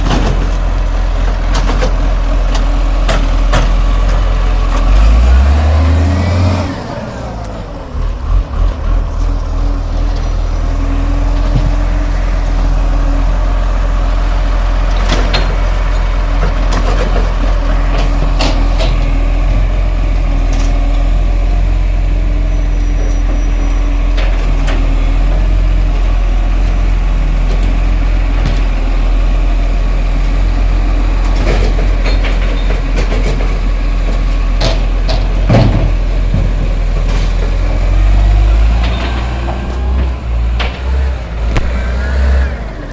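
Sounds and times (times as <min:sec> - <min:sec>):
garbage truck engine running: 0:00.0 - 0:42.9
metallic clanks and knocks: 0:31.3 - 0:41.7.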